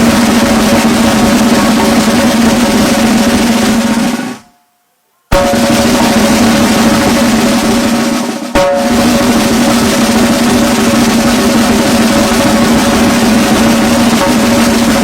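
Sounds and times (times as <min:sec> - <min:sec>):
bass drum: 0:00.0 - 0:04.4, 0:05.3 - 0:15.0
snare drum rolls: 0:00.0 - 0:04.5, 0:05.3 - 0:15.0
sustained musical tone: 0:05.3 - 0:15.0.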